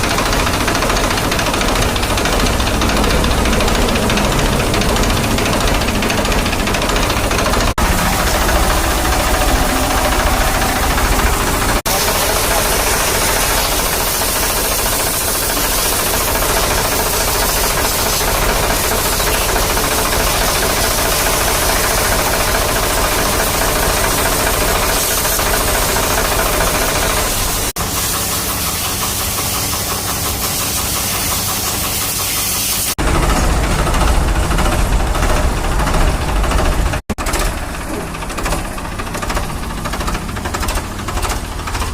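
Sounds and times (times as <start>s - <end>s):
engine running: 0.0s - 30.0s, 33.0s - 41.9s
high-pressure water spray hiss: 11.9s - 33.0s.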